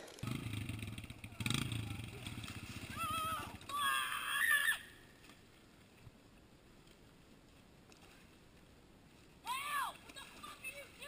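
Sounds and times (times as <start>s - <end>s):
person screaming high-pitched: 2.9s - 4.9s.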